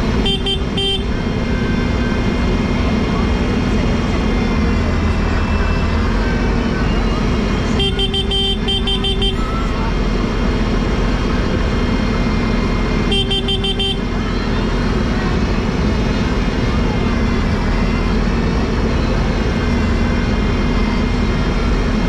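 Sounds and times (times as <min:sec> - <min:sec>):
vehicle horn: 0:00.0 - 0:01.6, 0:07.7 - 0:09.8, 0:13.0 - 0:14.5
tractor engine running: 0:00.0 - 0:22.0.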